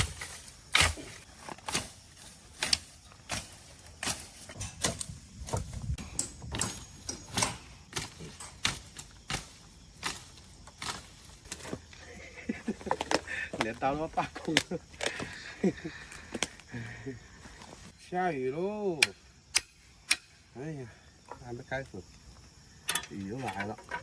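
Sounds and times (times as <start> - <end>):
knife chopping weeds and branches: 0.0 - 12.0, 12.6 - 15.4, 18.9 - 20.4.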